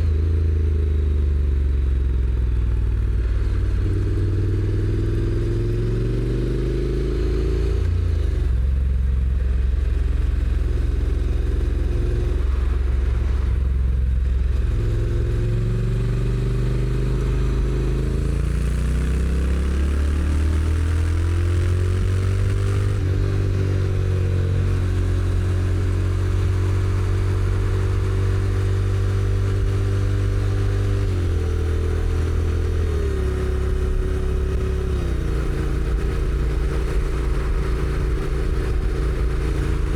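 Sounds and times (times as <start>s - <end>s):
motorcycle engine accelerating: 0.0s - 39.9s
road and wind noise: 0.0s - 39.9s.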